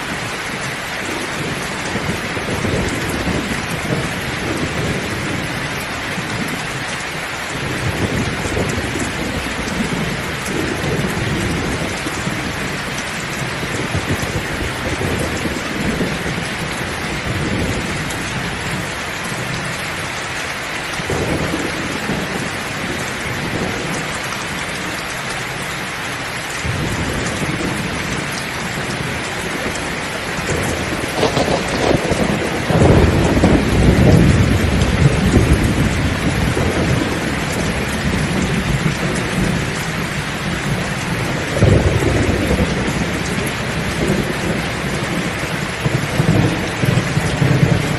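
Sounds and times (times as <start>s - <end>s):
heavy rain pouring: 0.0s - 47.9s
thunder rolling: 26.6s - 47.9s.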